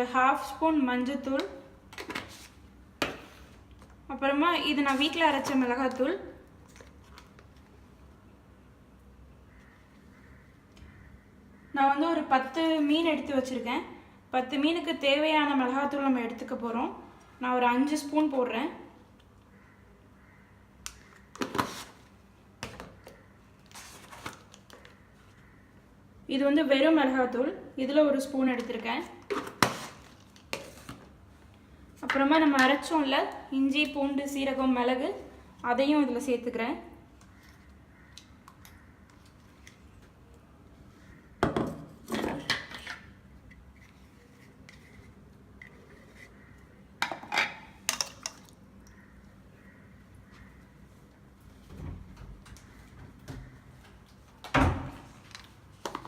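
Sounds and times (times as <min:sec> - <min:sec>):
spoon scooping powder: 0:42.8 - 0:46.6.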